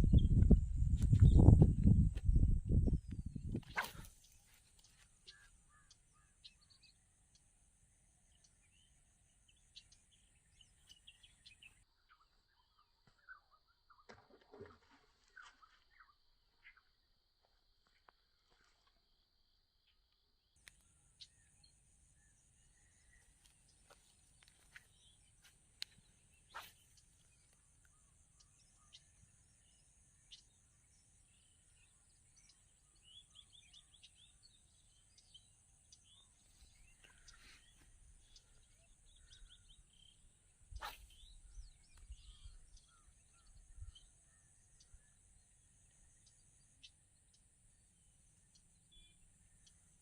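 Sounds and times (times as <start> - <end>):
low rumble: 0.0 - 3.4
bird chirps: 2.7 - 14.2, 19.9 - 50.0.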